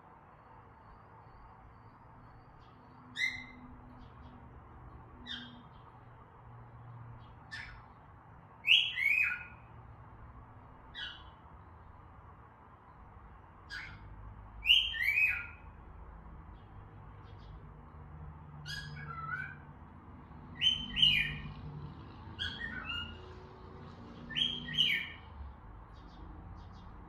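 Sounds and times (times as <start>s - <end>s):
cockatiels whistling: 8.7s - 9.5s, 14.6s - 15.6s, 20.6s - 21.4s, 22.4s - 23.2s, 24.3s - 25.2s.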